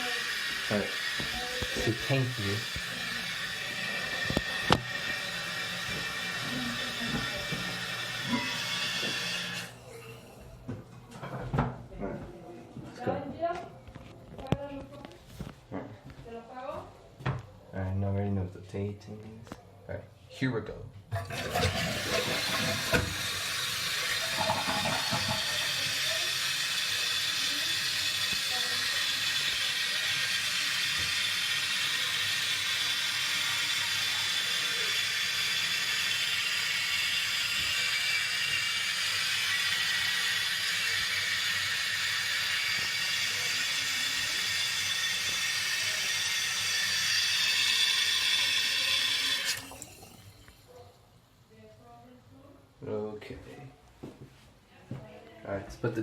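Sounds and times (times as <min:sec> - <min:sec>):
fill valve hissing: 0:00.0 - 0:10.4, 0:21.2 - 0:50.7
toilet water draining: 0:00.0 - 0:10.4, 0:21.1 - 0:50.8.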